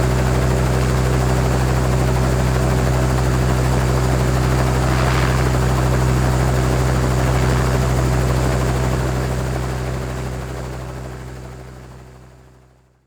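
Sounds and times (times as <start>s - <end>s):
helicopter idling: 0.0s - 11.7s.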